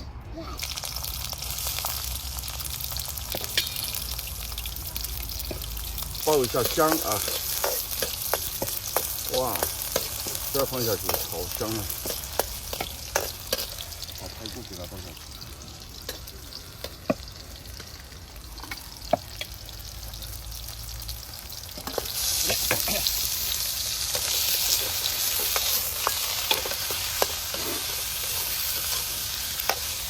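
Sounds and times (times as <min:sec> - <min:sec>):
ribs sizzling in hot oil: 0:00.6 - 0:30.0.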